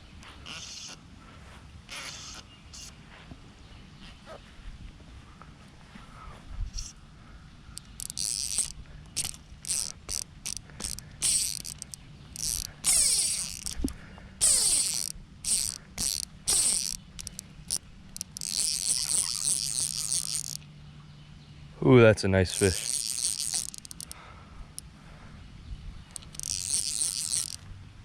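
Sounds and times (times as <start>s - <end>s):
fishing reel ratchet buzzing: 7.8s - 20.6s, 22.5s - 24.2s, 26.1s - 27.6s.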